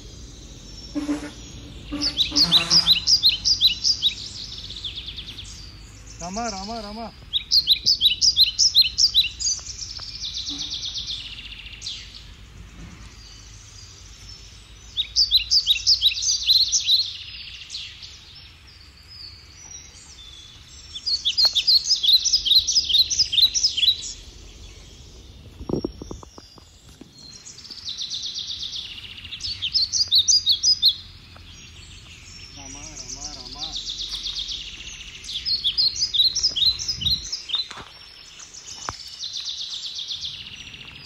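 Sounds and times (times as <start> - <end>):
bird chirping rapidly: 0.0 - 12.3, 13.2 - 26.4, 27.1 - 41.0.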